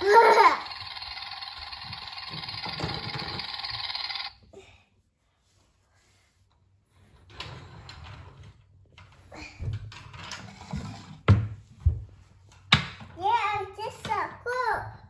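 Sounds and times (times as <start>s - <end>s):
toy motor whirring: 0.0s - 4.4s.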